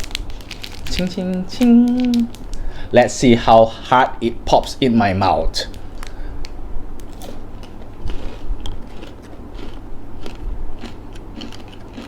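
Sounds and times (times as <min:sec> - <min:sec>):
popping candy crackles: 0:00.0 - 0:02.7
biting and chewing chocolate stick: 0:07.0 - 0:12.0.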